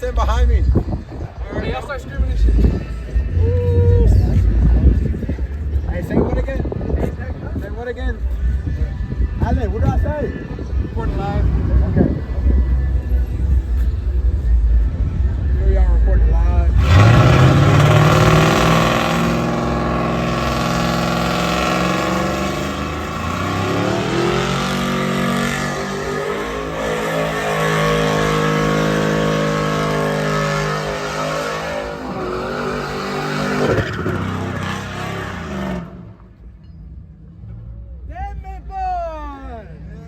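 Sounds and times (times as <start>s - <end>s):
truck engine revving hard: 16.6s - 36.3s.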